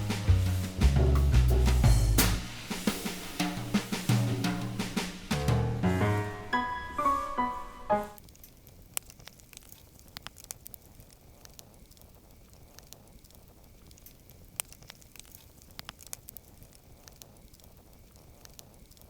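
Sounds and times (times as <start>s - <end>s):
campfire crackling: 8.2s - 19.0s.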